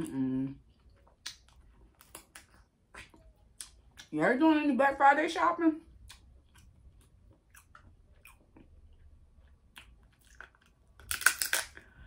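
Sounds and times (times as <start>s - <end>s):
wet chewing clicks: 6.0s - 11.8s
person biting food: 9.8s - 11.8s.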